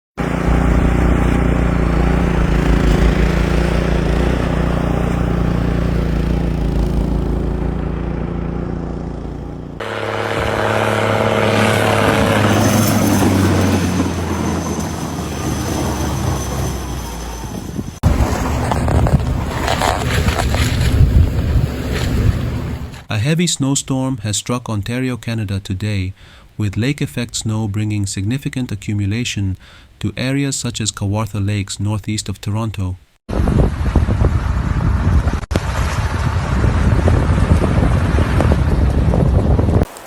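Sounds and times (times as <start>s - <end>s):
engine-like hum with hiss: 0.2s - 15.2s
vehicle engine running: 0.2s - 23.0s
rushing noise: 0.2s - 23.1s.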